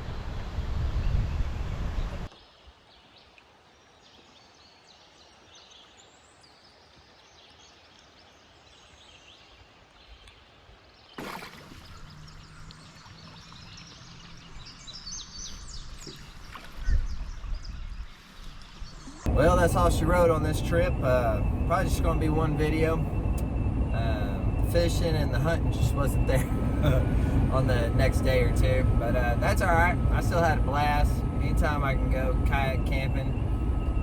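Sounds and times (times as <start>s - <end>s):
wind buffeting microphone: 0.0s - 2.3s, 11.8s - 34.0s
small birds chirping: 0.6s - 34.0s.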